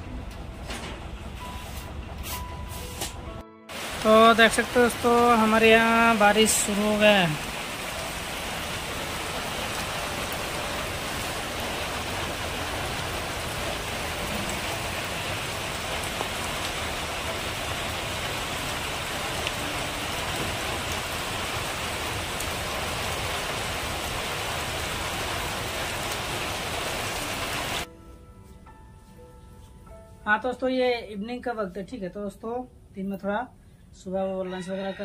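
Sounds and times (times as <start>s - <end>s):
rain falling on leaves: 3.7s - 27.9s.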